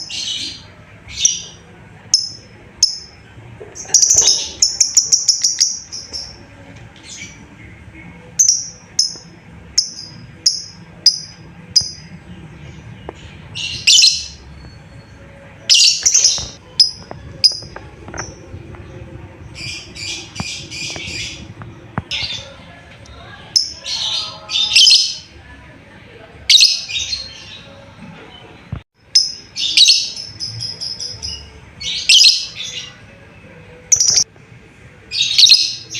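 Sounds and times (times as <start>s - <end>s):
lovebird chirping: 3.8s - 6.4s, 12.8s - 22.6s, 33.9s - 34.3s.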